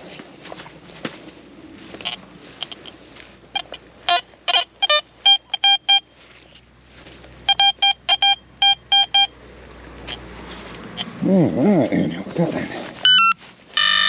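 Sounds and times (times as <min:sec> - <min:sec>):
metal detector beeps: 0:02.0 - 0:06.1, 0:07.2 - 0:09.4, 0:13.0 - 0:14.0.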